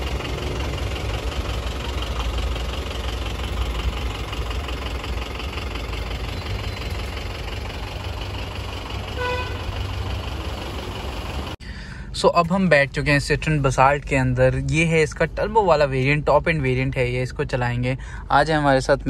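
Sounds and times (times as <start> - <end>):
car engine idling: 0.0 - 19.0
car horn toot: 9.1 - 9.9.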